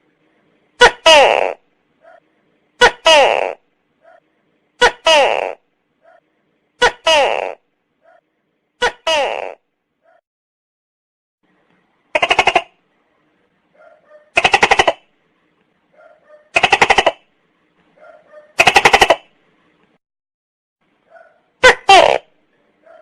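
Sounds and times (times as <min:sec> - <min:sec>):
gecko calling: 0:12.2 - 0:12.8, 0:13.9 - 0:15.1, 0:16.1 - 0:17.3.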